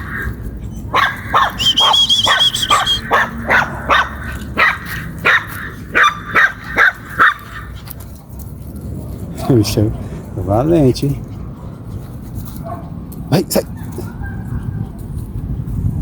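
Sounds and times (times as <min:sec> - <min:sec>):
dog barking: 0:00.0 - 0:07.7, 0:12.6 - 0:12.9.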